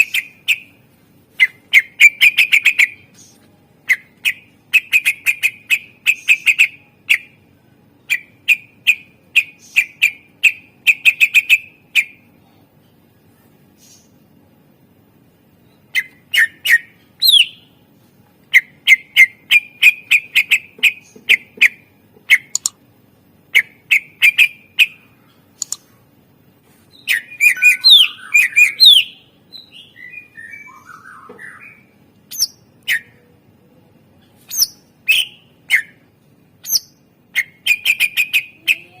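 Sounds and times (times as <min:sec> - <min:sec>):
bird chirping and whistling: 0:01.4 - 0:07.4, 0:15.9 - 0:17.7, 0:26.9 - 0:33.2, 0:34.5 - 0:36.0, 0:36.6 - 0:38.6.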